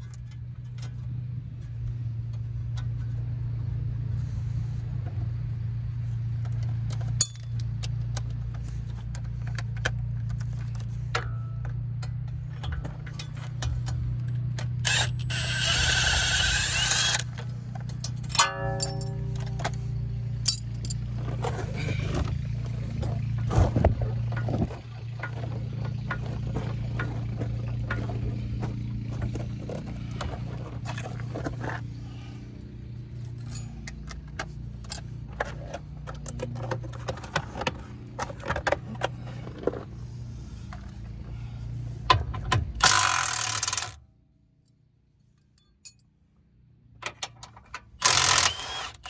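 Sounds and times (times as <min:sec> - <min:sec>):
metal tools clinking: 0:07.0 - 0:08.0, 0:14.9 - 0:17.4, 0:18.0 - 0:21.6.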